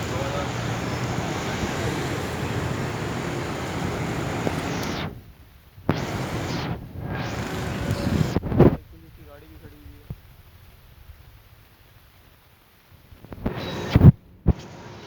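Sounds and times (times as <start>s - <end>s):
loud rushing street noise: 0.0s - 9.8s, 13.4s - 15.0s.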